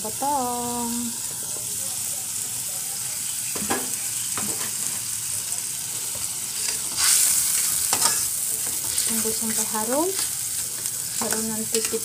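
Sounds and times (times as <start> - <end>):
spice paste sizzling in oil: 0.0 - 12.0
spatula scraping a wok: 6.1 - 12.0.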